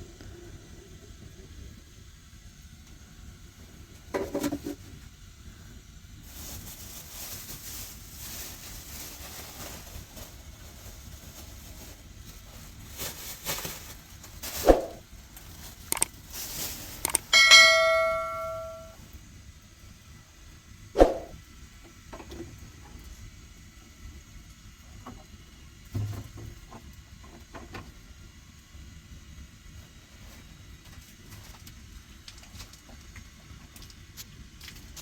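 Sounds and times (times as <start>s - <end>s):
metal object struck ringing: 17.4s - 19.0s.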